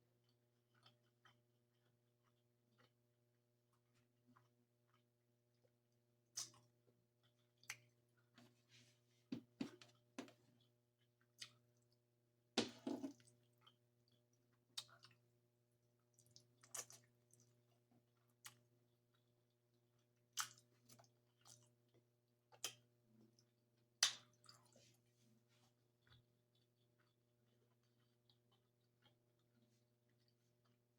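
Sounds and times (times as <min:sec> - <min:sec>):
mouth chewing and smacking: 0:00.2 - 0:03.0, 0:03.7 - 0:08.4, 0:09.7 - 0:12.0, 0:13.2 - 0:15.2, 0:16.0 - 0:17.6, 0:18.2 - 0:19.3, 0:20.0 - 0:25.0, 0:26.0 - 0:30.9.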